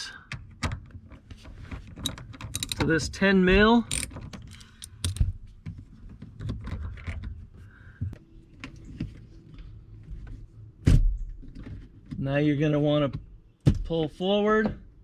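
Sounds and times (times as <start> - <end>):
tool clicking and tapping on bolt: 2.0 - 2.9, 3.9 - 5.2.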